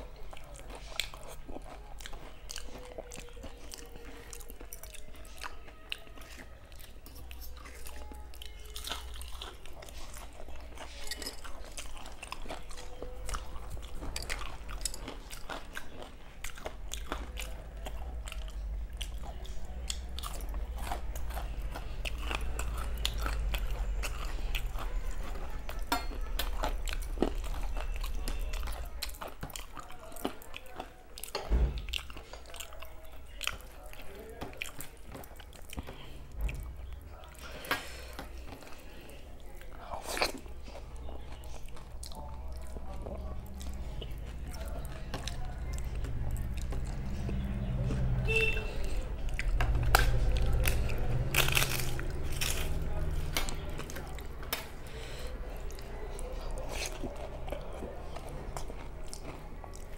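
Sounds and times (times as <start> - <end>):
chewing and crunching: 0.0 - 59.9.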